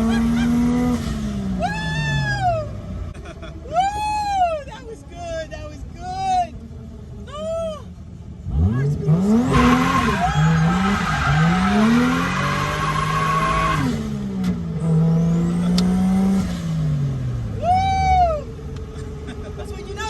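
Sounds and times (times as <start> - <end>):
car engine revving: 0.0 - 3.4, 5.4 - 20.0
tyres squealing: 9.3 - 13.8.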